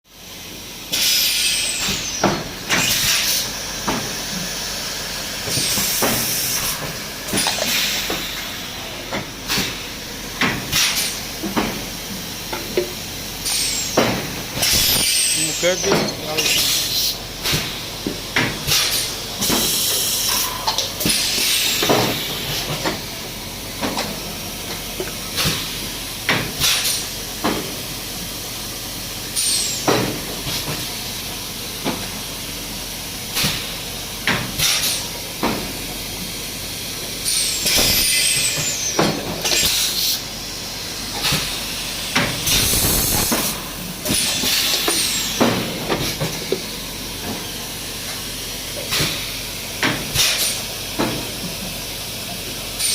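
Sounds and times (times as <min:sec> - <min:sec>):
steady machine hum: 0:00.1 - 0:52.8
compressed air hissing blasts: 0:37.2 - 0:46.8.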